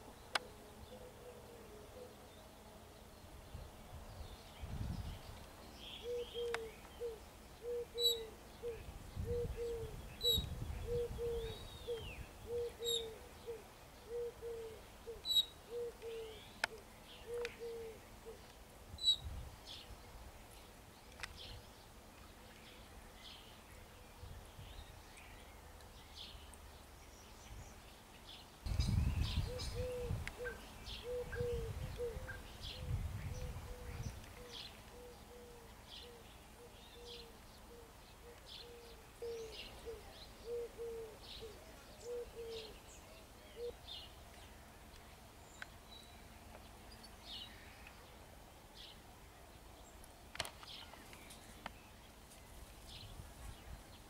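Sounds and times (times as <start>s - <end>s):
birds chirping: 0.0s - 54.0s
low repeated bird notes: 4.3s - 19.2s, 28.7s - 48.1s.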